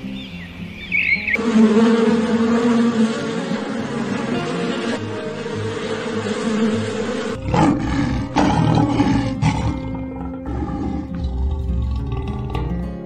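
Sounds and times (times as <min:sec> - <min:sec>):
hornet buzzing: 0:00.9 - 0:12.9
lioness roaring: 0:06.4 - 0:12.8.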